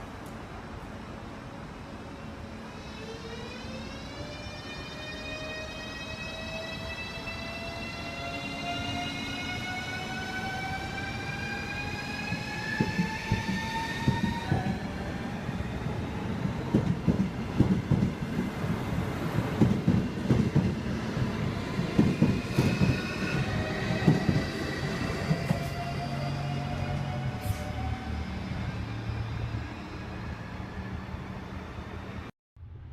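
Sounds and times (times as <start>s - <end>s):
train wheels clacking over rails: 12.3s - 14.8s, 16.6s - 18.6s, 19.6s - 25.7s.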